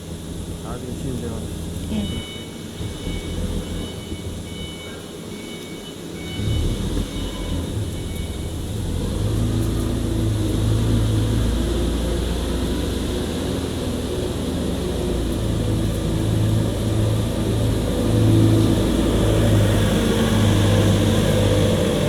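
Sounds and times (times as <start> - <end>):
low mechanical rumble with hum: 0.0 - 22.0.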